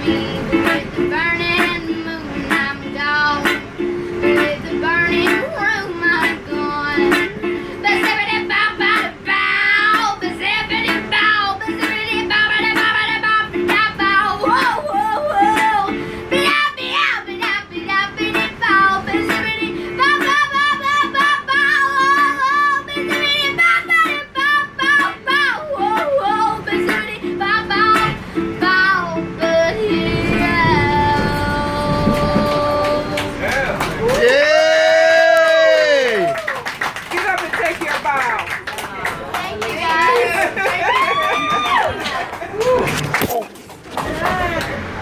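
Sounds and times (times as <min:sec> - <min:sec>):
girl singing: 0:00.0 - 0:33.4
strummed ukulele: 0:00.0 - 0:36.6, 0:39.9 - 0:45.0.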